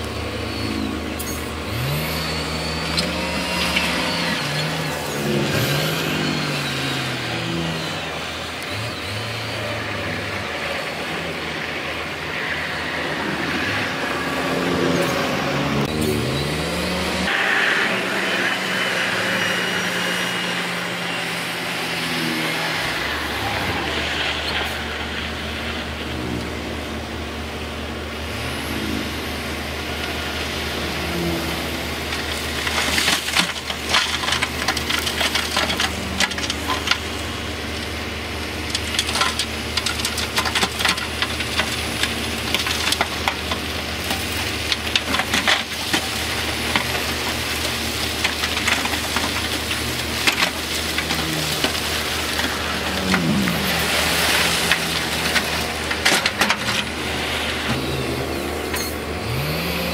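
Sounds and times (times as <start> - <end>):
heavy machinery diesel engines: 0.0 - 59.9
rock and steel clattering: 32.2 - 37.4, 38.6 - 57.7.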